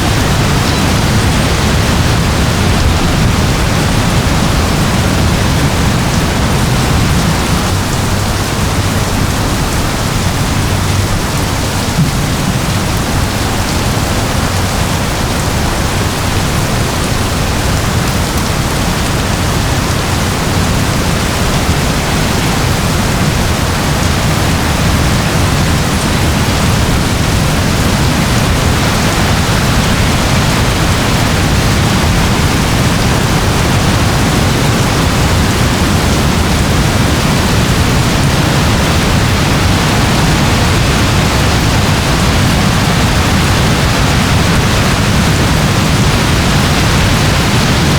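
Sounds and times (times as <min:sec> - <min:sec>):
heavy rain: 0:00.0 - 0:47.9.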